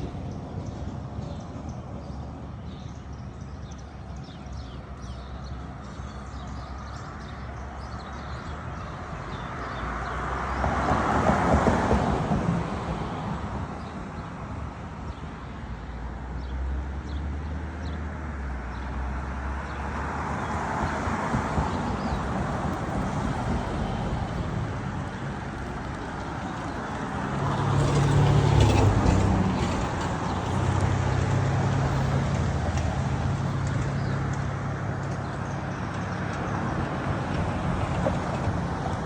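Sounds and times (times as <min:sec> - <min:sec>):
vehicle engine hum: 0:16.7 - 0:39.0.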